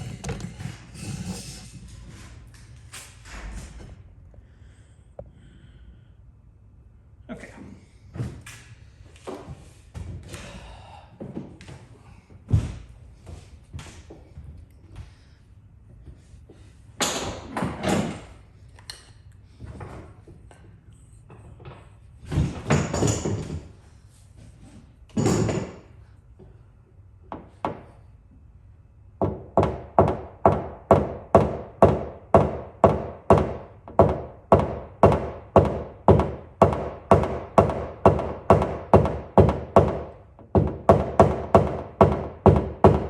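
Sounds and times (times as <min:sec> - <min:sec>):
scraping or rustling noises: 0:00.0 - 0:02.9.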